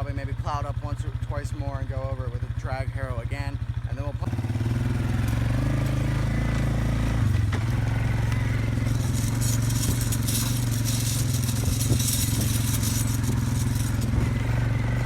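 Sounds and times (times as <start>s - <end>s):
atv engine running: 0.0s - 15.0s
harrow dragging over ground: 4.9s - 15.0s.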